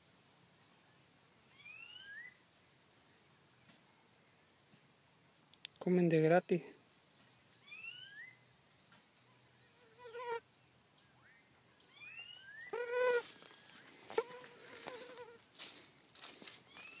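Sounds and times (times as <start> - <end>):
rising bird whistles: 1.5 - 2.4
loud full bird calls: 1.5 - 15.0, 16.2 - 17.0
rustling and brushing: 12.8 - 17.0.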